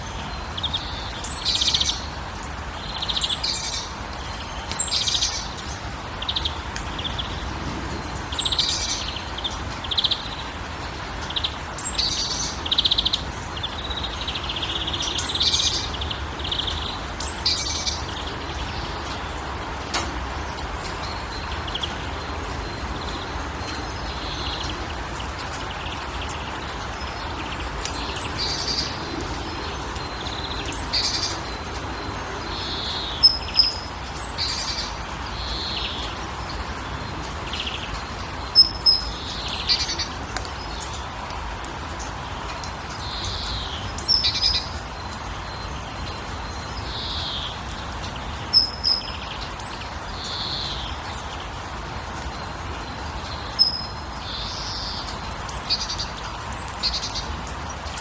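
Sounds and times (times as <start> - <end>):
birds chirping and trilling: 0.0 - 41.3.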